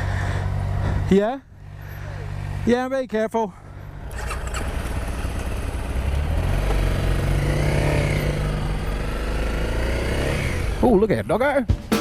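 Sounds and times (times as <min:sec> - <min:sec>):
dirt bike engine revving: 0:06.0 - 0:10.8.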